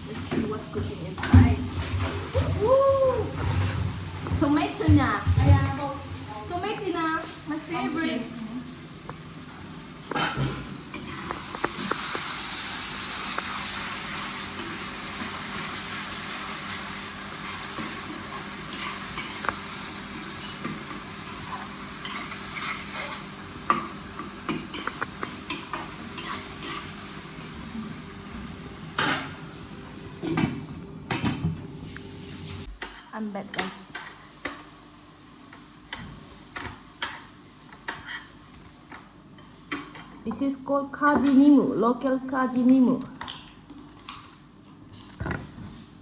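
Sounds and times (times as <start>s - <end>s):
food sizzling in a pan: 0.2s - 30.4s, 31.4s - 32.8s.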